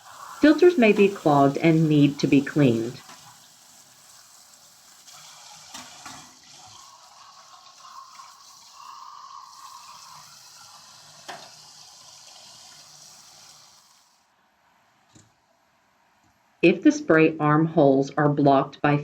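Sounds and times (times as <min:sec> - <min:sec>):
water running from a tap: 0:00.0 - 0:14.3.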